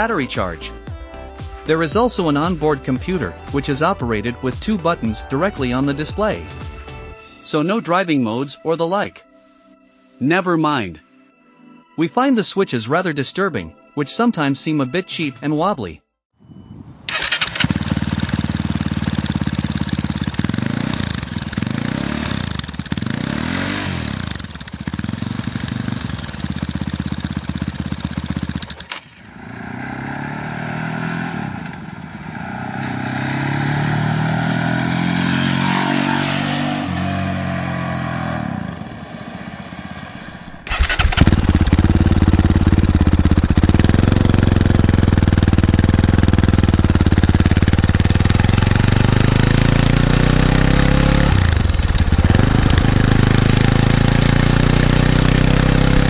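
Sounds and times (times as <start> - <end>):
motorcycle engine passing: 17.1 - 56.0.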